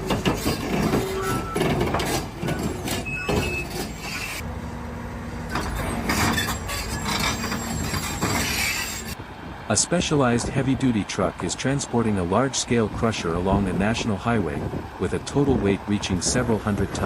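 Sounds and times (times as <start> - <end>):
machinery knocking and clattering: 0.0 - 3.9
heavy machinery engine: 0.0 - 17.0.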